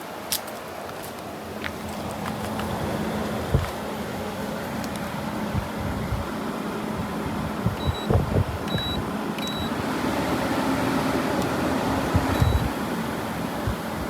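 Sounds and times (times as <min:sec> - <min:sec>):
air conditioner blowing: 0:00.0 - 0:14.0
control panel beeping: 0:07.7 - 0:09.8, 0:12.1 - 0:12.8.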